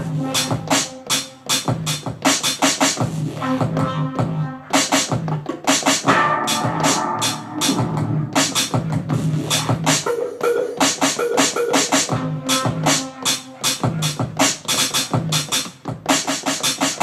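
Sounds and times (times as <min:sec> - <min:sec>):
fast electronic drum hits: 0:05.1 - 0:10.1
repeating bass line: 0:06.0 - 0:09.9.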